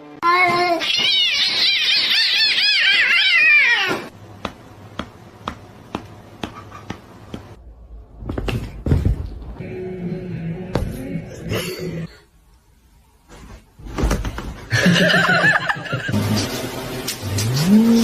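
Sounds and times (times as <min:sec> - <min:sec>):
cat yowling: 0:00.8 - 0:04.1.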